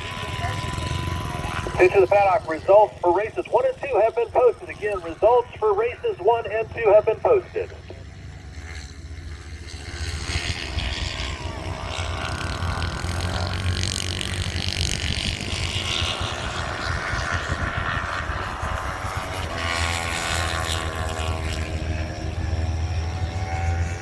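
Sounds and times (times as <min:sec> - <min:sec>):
racing motorcycle engines: 0:00.0 - 0:24.0.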